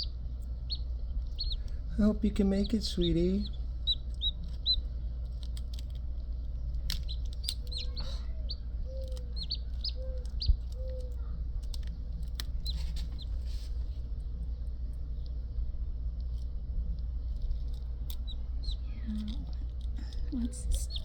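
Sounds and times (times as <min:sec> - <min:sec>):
chicks peeping: 0:00.0 - 0:13.9, 0:17.3 - 0:21.0
steady low hum: 0:00.0 - 0:21.0
lower chick calls: 0:00.7 - 0:01.8, 0:02.5 - 0:04.9, 0:07.0 - 0:11.3, 0:18.2 - 0:18.9.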